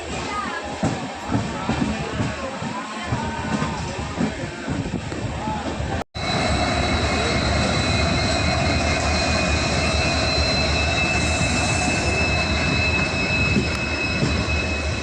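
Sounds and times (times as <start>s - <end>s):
train coach rumbling on track: 3.1s - 15.0s
steel wheels squealing on rails: 6.2s - 15.0s.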